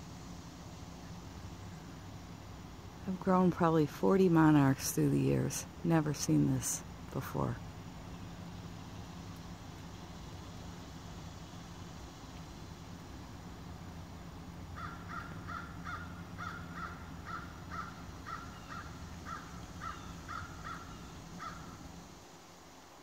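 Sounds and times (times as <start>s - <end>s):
low steady hum: 0.0s - 23.0s
bird calling rapid notes: 14.8s - 21.8s.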